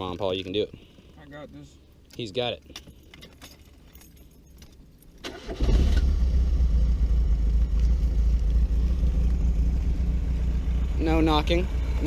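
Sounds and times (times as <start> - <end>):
car engine cranking and idling: 3.8 - 12.0.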